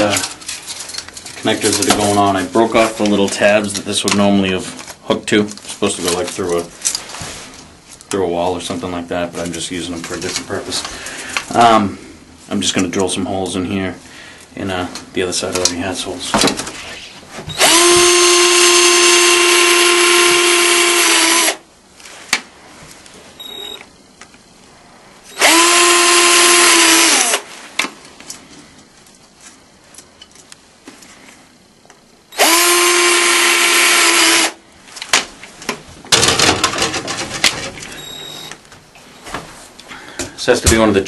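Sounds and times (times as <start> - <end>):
electric drill whining: 17.5 - 21.6, 25.3 - 27.5, 32.4 - 34.6.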